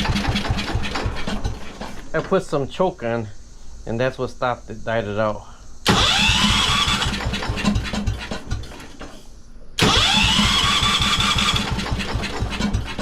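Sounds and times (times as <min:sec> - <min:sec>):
electric starter cranking engine: 0:00.0 - 0:02.1, 0:05.8 - 0:09.2, 0:09.8 - 0:13.0.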